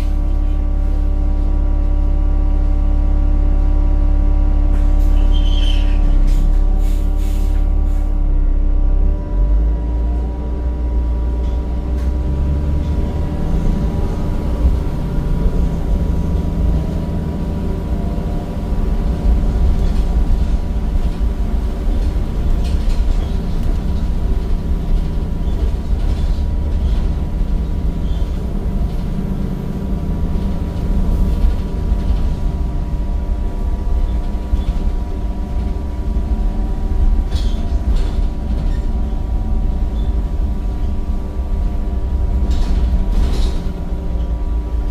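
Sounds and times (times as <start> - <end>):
bus diesel engine rumble: 0.0 - 44.9.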